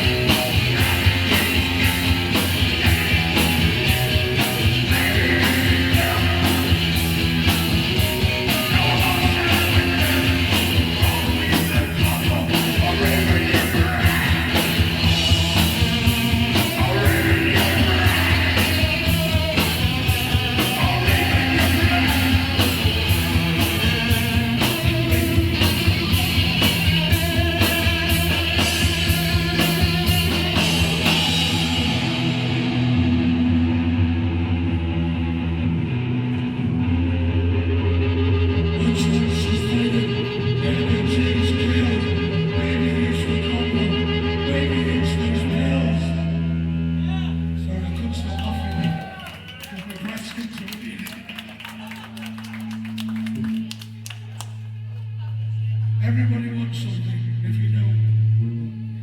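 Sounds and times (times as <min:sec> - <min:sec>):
fast drum beat: 0:00.0 - 0:32.4
distorted electric guitar: 0:00.0 - 0:47.7
bass guitar: 0:00.0 - 0:59.0.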